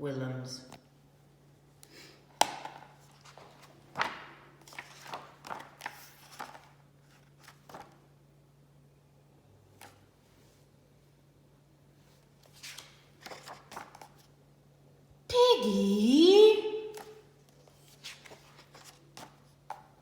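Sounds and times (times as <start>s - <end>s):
book pages rustling: 2.4s - 8.0s, 12.0s - 14.4s, 16.9s - 20.0s.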